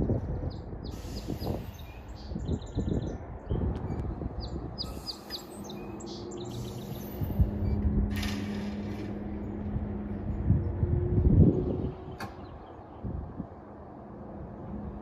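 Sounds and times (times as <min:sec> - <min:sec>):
electric train rumble: 0:00.0 - 0:15.0
small birds chirping: 0:00.3 - 0:07.8.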